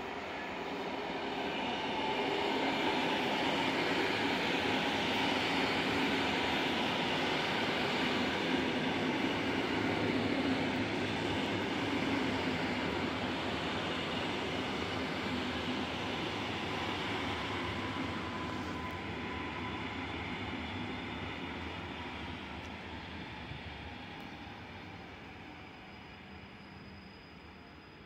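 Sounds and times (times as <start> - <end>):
train wheels rumbling on rail: 0.0 - 27.6.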